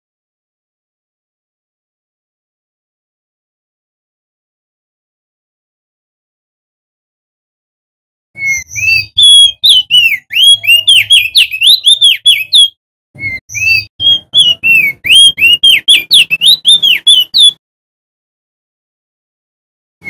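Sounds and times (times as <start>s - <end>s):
bird singing whistled notes: 8.4s - 17.6s.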